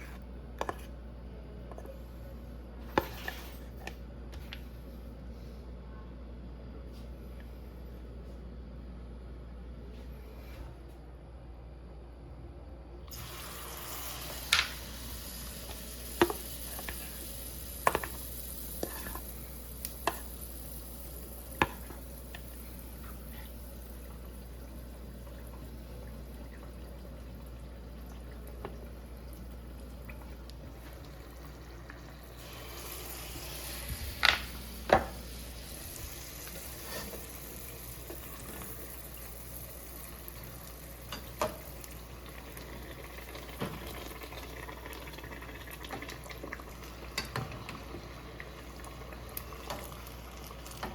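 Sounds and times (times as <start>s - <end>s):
sizzling in a pan: 13.1s - 50.9s.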